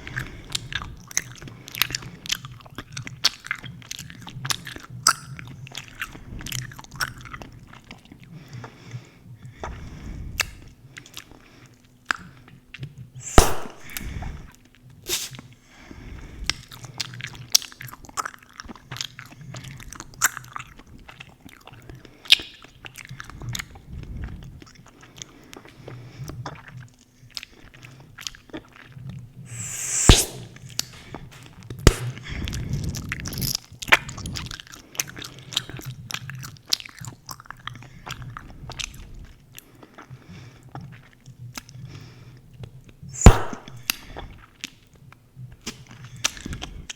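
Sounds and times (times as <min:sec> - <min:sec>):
gum pops: 0:13.2 - 0:14.2, 0:29.5 - 0:31.1, 0:31.9 - 0:32.3, 0:43.2 - 0:44.1
breathy hiss: 0:13.2 - 0:14.4, 0:15.1 - 0:15.4, 0:29.5 - 0:32.3, 0:43.2 - 0:44.0.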